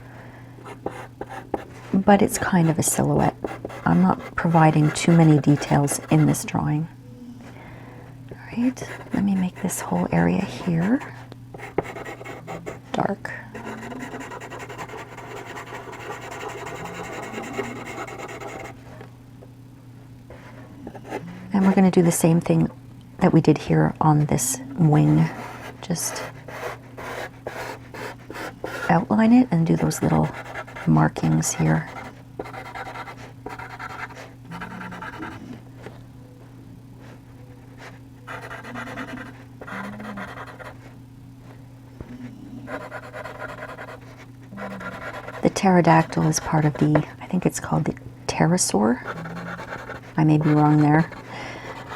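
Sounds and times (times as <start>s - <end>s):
faint steady hum: 0.0s - 51.9s
charcoal pencil scratching on paper: 0.7s - 1.7s, 2.3s - 6.4s, 8.8s - 12.8s, 13.6s - 18.8s, 29.8s - 35.4s, 37.8s - 40.8s, 42.7s - 47.0s, 49.0s - 51.9s.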